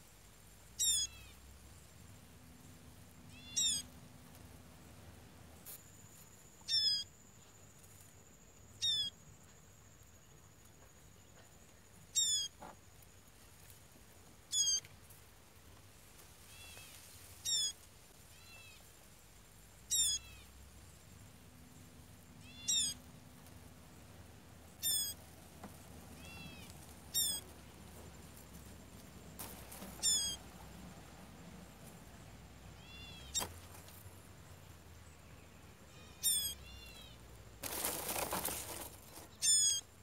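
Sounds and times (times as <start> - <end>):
bird sharp falling calls: 3.3 - 3.9, 22.4 - 23.0, 24.8 - 25.2, 26.2 - 27.5, 29.5 - 30.4, 36.0 - 37.0, 37.7 - 39.8.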